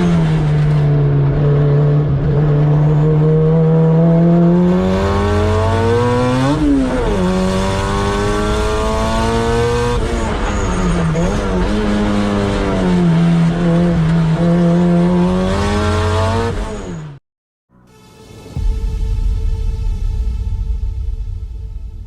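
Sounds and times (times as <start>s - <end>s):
car engine revving under load: 0.0s - 17.2s.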